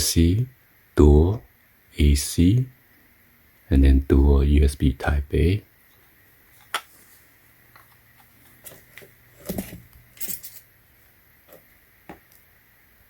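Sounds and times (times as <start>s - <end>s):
parts clicking and rattling: 7.7s - 10.7s.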